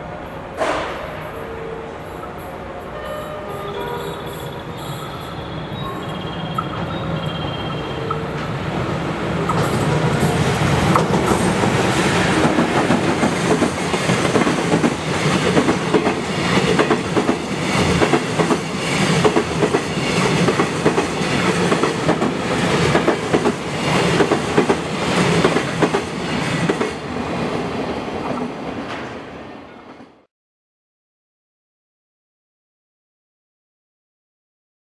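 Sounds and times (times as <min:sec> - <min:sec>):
freight train wheels clattering: 0:08.3 - 0:27.6.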